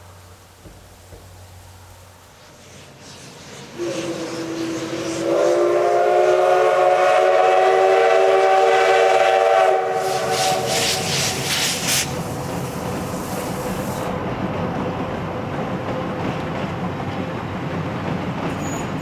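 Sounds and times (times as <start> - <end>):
locomotive exhaust chuffs: 0.1 - 14.3
steam locomotive whistle: 3.7 - 14.1.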